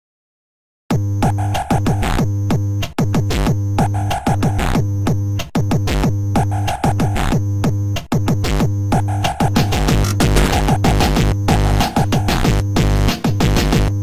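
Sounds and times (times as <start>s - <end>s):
drum-machine beat: 9.1s - 13.9s
electronic techno music: 9.4s - 11.3s.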